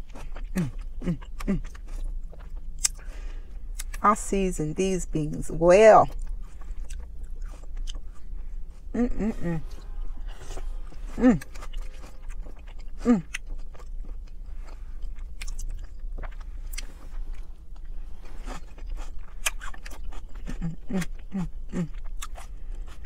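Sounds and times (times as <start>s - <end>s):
wet chewing with clicks: 0.0s - 3.1s, 3.7s - 4.0s, 6.1s - 8.9s, 9.8s - 23.0s
person humming: 8.9s - 11.6s.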